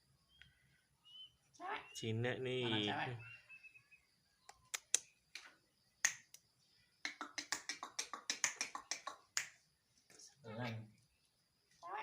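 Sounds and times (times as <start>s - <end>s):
starling clicking: 4.4s - 6.4s, 7.0s - 9.6s.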